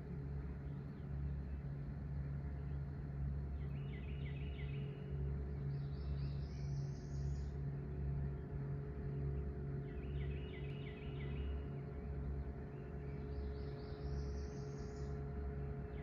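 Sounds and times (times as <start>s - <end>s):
songbird singing: 2.6s - 8.0s, 9.0s - 16.0s
diesel engine drone: 5.4s - 16.0s.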